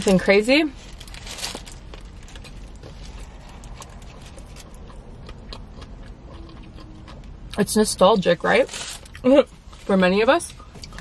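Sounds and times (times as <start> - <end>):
person chewing food: 1.8 - 7.6.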